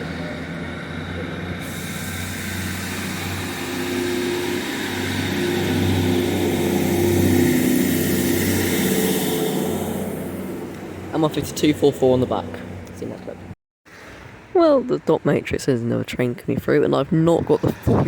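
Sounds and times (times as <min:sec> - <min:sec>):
diesel train pulling away: 0:00.0 - 0:13.5.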